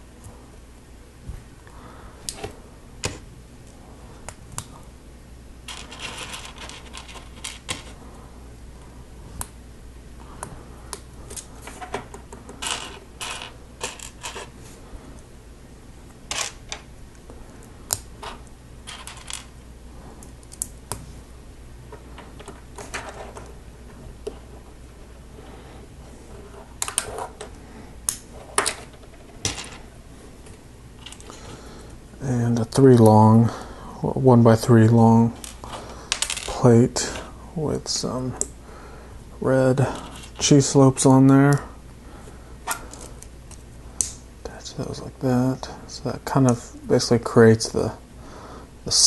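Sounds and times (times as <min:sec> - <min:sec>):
loose plastic pieces rattling: 0:05.7 - 0:08.0.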